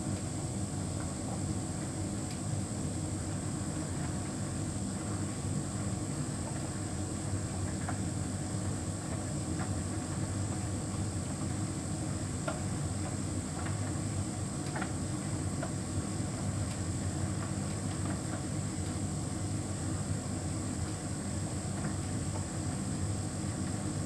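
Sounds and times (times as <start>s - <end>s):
faint clicks of tumbling load: 14.6s - 15.0s.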